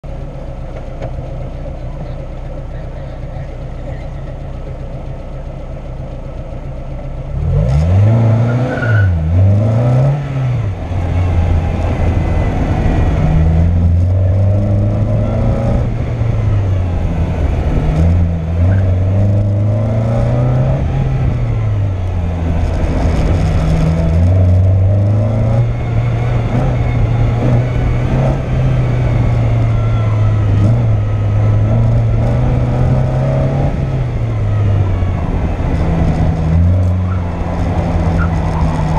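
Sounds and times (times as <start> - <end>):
car engine revving: 0.0 - 38.9
car braking: 7.5 - 38.9.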